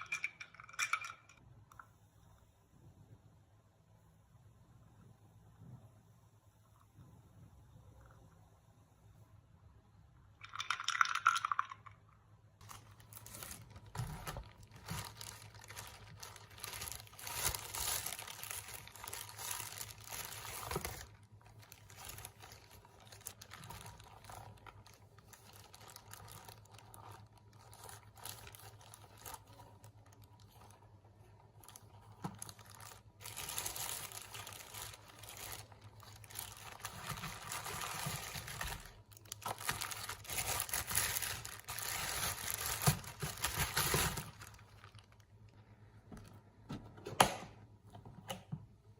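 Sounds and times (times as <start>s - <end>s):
rustling and crinkling: 12.6s - 47.0s.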